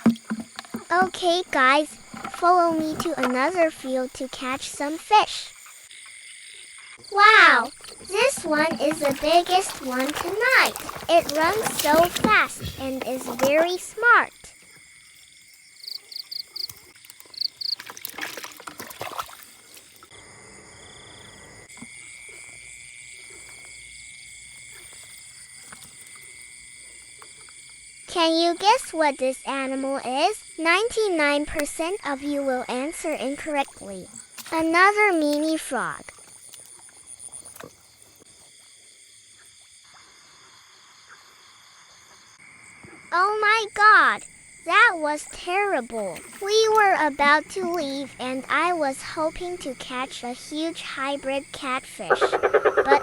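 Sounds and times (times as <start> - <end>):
crickets chirping chorus: 0.0 - 53.0
frogs calling: 0.0 - 53.0
insects trilling: 0.0 - 53.0
scuffling noise: 7.3 - 14.3.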